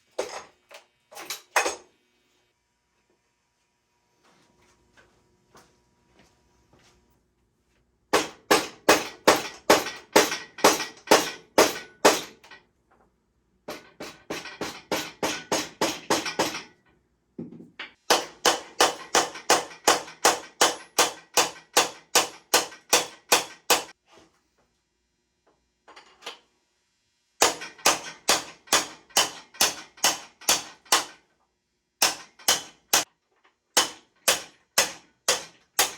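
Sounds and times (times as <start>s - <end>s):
hammer striking metal: 8.1s - 12.6s, 13.7s - 16.8s, 17.8s - 24.0s, 27.4s - 31.2s, 32.0s - 33.1s, 33.8s - 35.9s.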